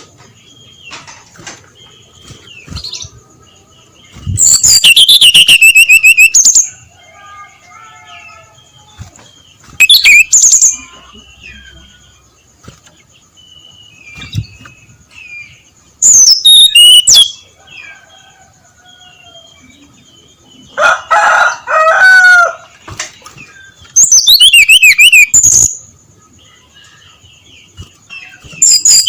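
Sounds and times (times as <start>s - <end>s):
soft warbled bird notes: 4.1s - 6.6s, 13.5s - 17.4s, 23.4s - 25.8s
bird singing rapid high notes: 4.2s - 6.7s, 9.8s - 10.8s, 16.0s - 17.4s, 23.9s - 25.8s.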